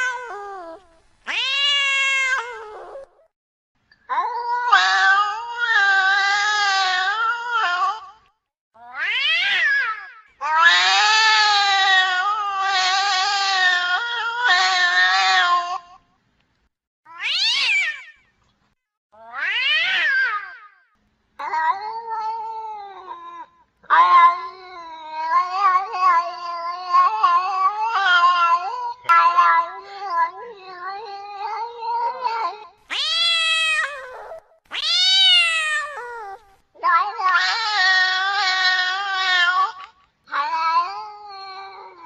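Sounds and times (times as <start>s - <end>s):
higher cat calls falling in pitch: 0.0s - 2.8s, 32.9s - 36.5s
cats yowling: 0.0s - 3.3s, 4.1s - 8.2s, 8.8s - 15.8s, 17.1s - 18.2s, 19.2s - 20.7s, 21.4s - 42.0s.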